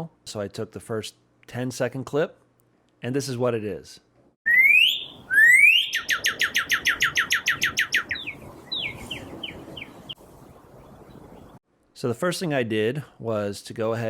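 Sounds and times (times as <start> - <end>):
cardinal singing whistles and chirps: 4.5 - 10.2.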